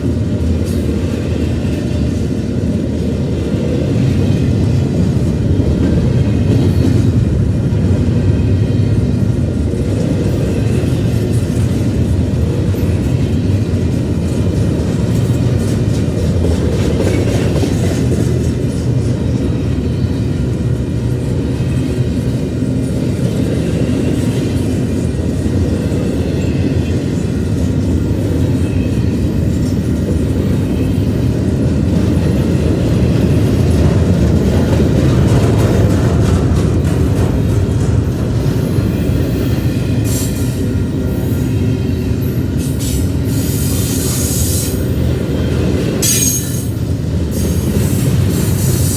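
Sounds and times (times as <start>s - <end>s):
freight train rolling past: 0.0s - 48.9s
wheels clicking on rails: 9.6s - 40.8s.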